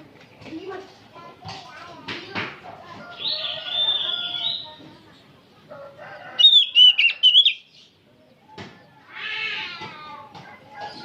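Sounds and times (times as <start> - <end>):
drawn-out bird call: 3.1 - 4.8, 6.0 - 7.7
bird singing whistled notes: 6.4 - 7.8.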